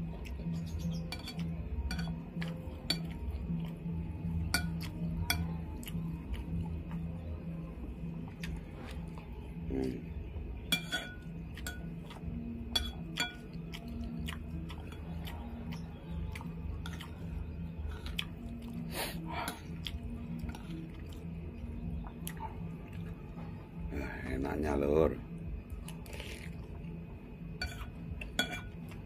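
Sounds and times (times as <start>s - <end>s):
low pulsing hum: 0.0s - 29.0s
metal spoon clinking on bowl: 1.0s - 3.2s, 4.5s - 5.6s, 10.7s - 12.0s, 12.7s - 13.6s, 27.6s - 29.0s
man chewing: 11.5s - 12.4s, 13.1s - 21.3s, 22.1s - 23.1s, 25.7s - 26.8s
lip-smacking: 18.0s - 18.8s.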